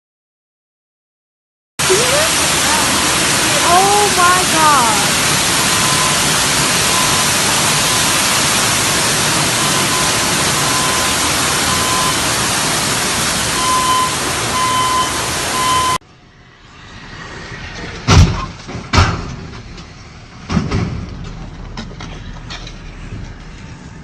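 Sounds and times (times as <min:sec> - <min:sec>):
gushing water: 0:01.8 - 0:16.0.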